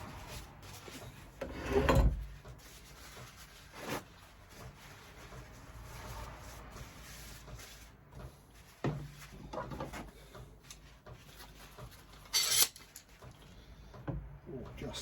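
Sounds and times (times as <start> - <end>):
soft rubbing: 2.2 - 9.5.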